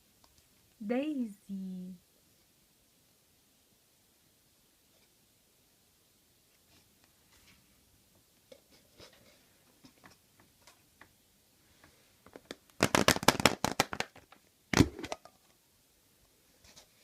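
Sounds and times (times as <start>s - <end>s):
hands rustling and tapping: 6.5s - 11.2s, 11.8s - 15.3s
wrapper crinkling and tearing: 12.4s - 15.1s
sharp crack: 12.5s - 15.2s.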